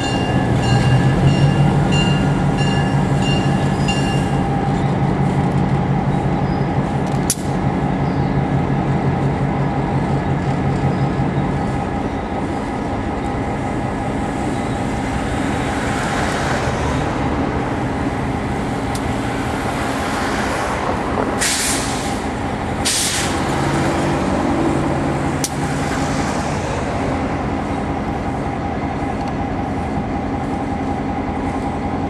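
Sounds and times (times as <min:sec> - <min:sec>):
diesel locomotive engine running: 0:00.0 - 0:32.0
air brake hisses: 0:21.4 - 0:23.4.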